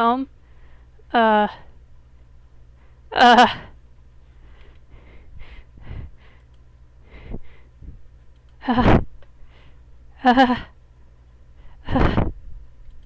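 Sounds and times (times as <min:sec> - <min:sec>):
person breathing and sighing: 0:04.4 - 0:08.0, 0:08.6 - 0:09.8, 0:11.6 - 0:12.4.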